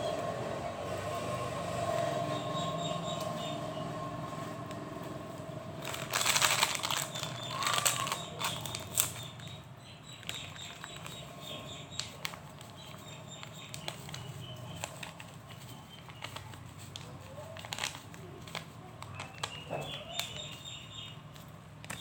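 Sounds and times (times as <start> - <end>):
plastic packaging crinkling: 5.8 - 22.0.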